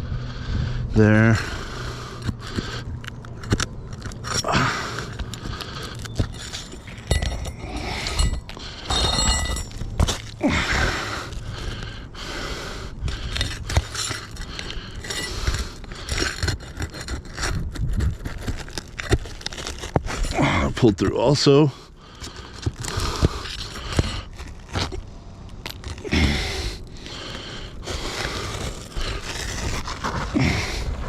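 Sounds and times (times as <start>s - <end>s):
shingles scraping: 2.2s - 12.0s, 13.0s - 31.0s
sharp metal clinks: 6.2s - 9.8s.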